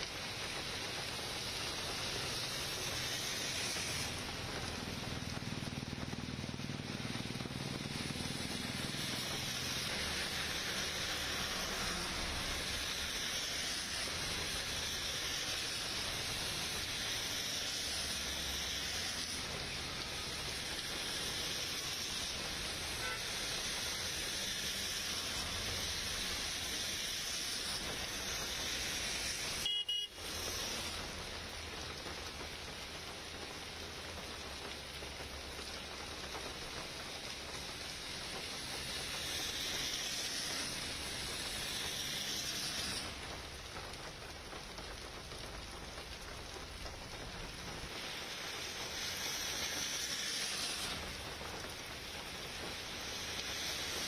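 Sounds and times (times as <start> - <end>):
heavy rain on street: 0.0 - 54.0
vehicles passing: 1.9 - 15.1
car horn toot: 23.0 - 23.2, 29.6 - 30.2.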